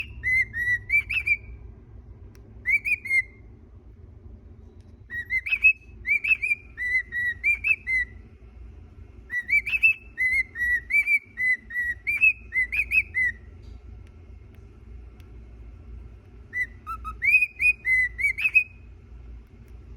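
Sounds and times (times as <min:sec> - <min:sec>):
cockatiel whistling: 0:00.0 - 0:01.6, 0:02.6 - 0:03.4, 0:05.1 - 0:08.2, 0:09.3 - 0:13.5, 0:16.5 - 0:18.9.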